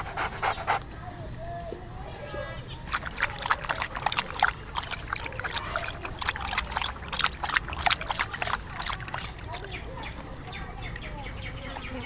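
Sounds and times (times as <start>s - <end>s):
water splashing and sloshing: 1.7s - 10.8s.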